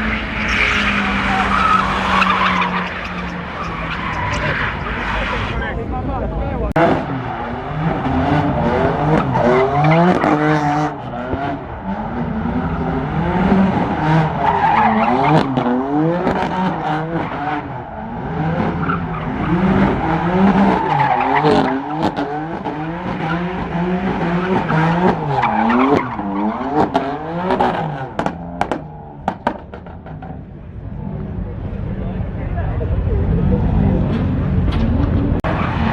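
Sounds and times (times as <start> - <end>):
tyres squealing: 0.0 - 5.6
car engine revving: 0.0 - 35.9.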